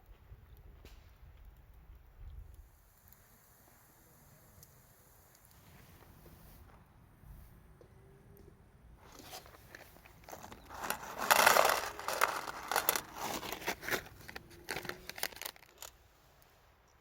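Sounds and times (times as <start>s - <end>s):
crinkling and rustling: 9.0s - 16.0s.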